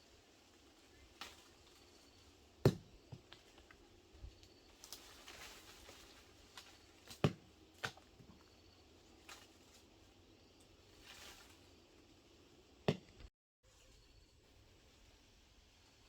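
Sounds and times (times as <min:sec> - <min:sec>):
soft rustle: 0:03.4 - 0:07.0, 0:10.8 - 0:12.0.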